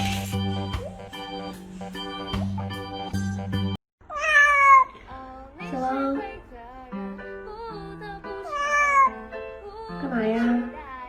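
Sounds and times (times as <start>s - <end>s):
music with held notes: 0.0s - 3.8s
cat meowing: 4.0s - 5.1s, 8.5s - 9.2s.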